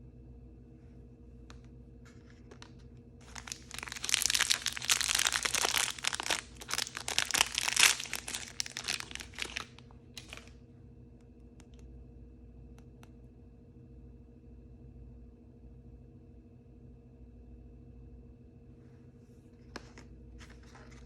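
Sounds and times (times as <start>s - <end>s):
plastic packaging crinkling and tearing: 2.3s - 10.5s.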